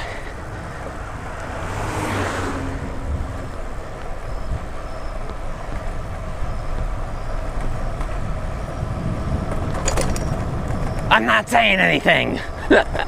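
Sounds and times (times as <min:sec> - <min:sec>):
vehicle passing: 0:00.0 - 0:12.6
steady low traffic rumble: 0:00.0 - 0:13.0.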